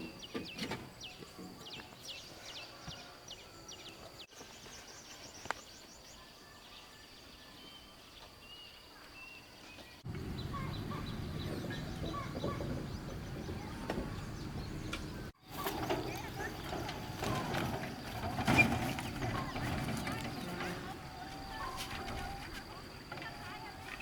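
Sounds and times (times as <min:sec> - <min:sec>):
background noise: 0:00.0 - 0:24.0
birds chirping and calling: 0:09.0 - 0:24.0.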